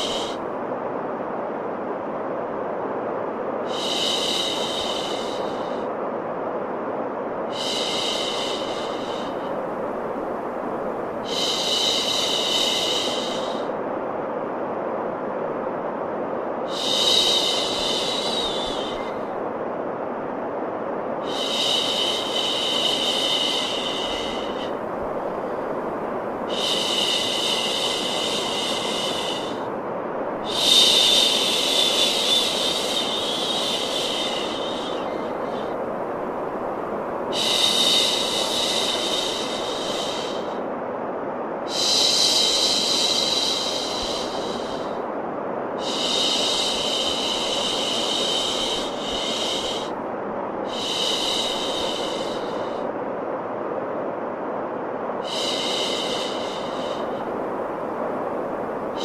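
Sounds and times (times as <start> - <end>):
higher brighter hiss: 0.0 - 0.5, 21.0 - 40.8, 41.6 - 50.0, 50.6 - 53.0, 55.1 - 59.0
steady white noise hiss: 0.0 - 59.0.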